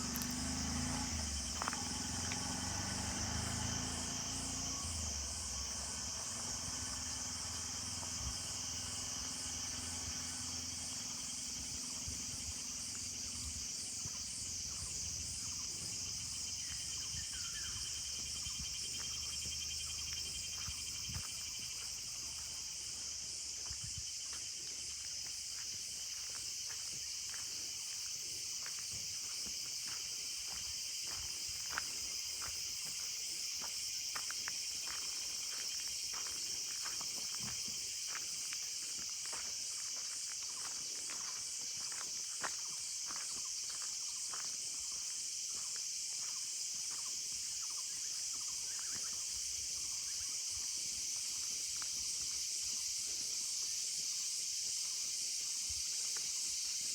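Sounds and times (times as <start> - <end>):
footsteps on road: 0.0 - 56.9
insects chirping: 0.0 - 56.9.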